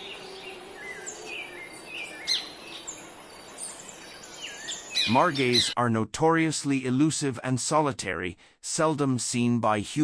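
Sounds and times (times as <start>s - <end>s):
background hiss: 0.0s - 5.7s
birds chirping and whistling: 0.0s - 5.8s.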